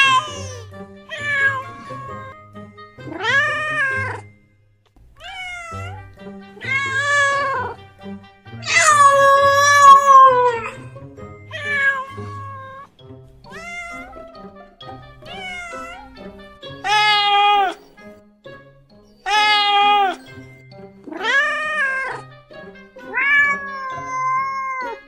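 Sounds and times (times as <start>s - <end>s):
cat meowing: 0.0s - 2.4s, 3.0s - 4.3s, 5.2s - 7.8s, 8.6s - 10.8s, 11.5s - 12.9s, 13.5s - 14.6s, 15.2s - 17.9s, 19.2s - 20.3s, 21.1s - 22.3s, 23.0s - 25.0s.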